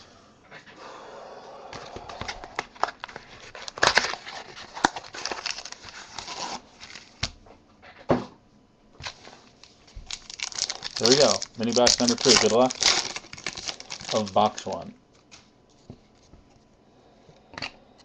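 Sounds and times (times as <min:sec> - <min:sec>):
packaging crinkling and tearing: 0:02.2 - 0:07.3, 0:09.0 - 0:15.4.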